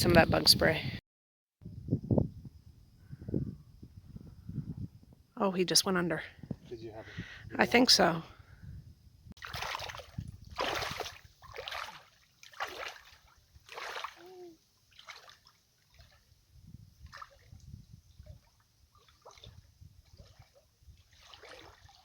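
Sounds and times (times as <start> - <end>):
lake water splashing: 9.4 - 22.0
water trickles and drips: 9.5 - 22.0.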